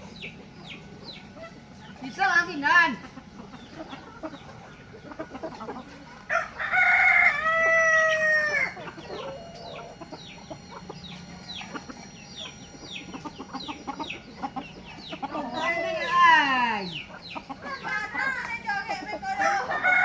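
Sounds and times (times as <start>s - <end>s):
rooster crowing: 6.3s - 10.0s, 19.2s - 20.0s.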